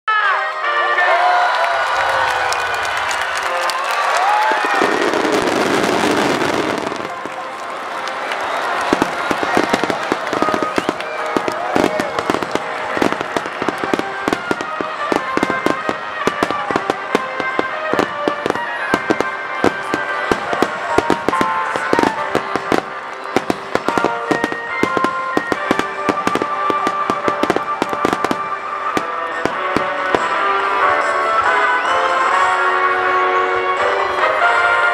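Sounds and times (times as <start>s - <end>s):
fireworks bursting and crackling: 2.1s - 32.5s
melody playing: 10.3s - 31.7s.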